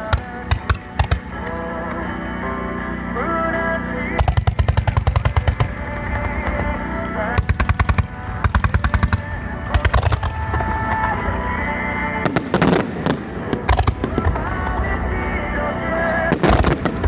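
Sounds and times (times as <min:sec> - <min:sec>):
music: 0:00.0 - 0:17.0
fireworks exploding: 0:07.3 - 0:11.2, 0:12.2 - 0:15.1, 0:16.2 - 0:17.0.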